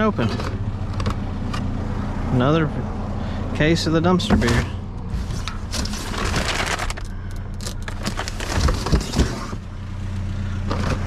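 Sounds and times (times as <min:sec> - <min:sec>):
vehicle engine hum: 0:00.0 - 0:11.0
beer case clicking and rattling: 0:07.7 - 0:09.6.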